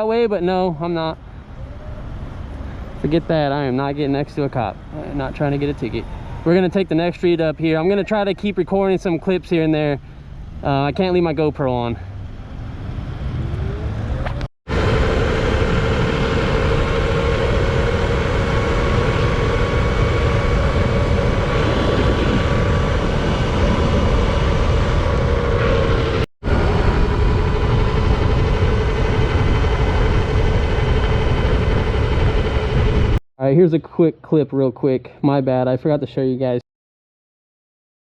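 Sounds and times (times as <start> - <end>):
electric motor whine: 12.8 - 33.2
wind rush on microphone: 12.9 - 33.2.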